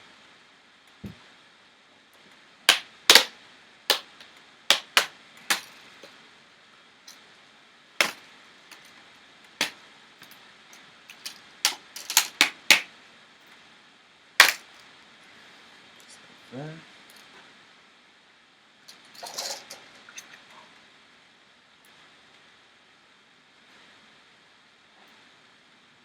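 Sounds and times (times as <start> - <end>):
plastic clips snapping loose: 2.7 - 3.3, 11.1 - 12.9, 14.4 - 14.6.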